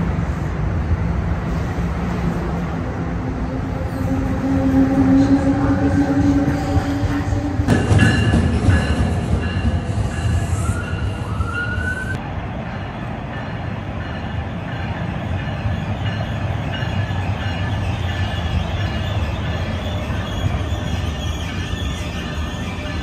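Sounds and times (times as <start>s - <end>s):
approaching train rumble: 0.0s - 23.0s
passing train hum: 0.0s - 23.0s.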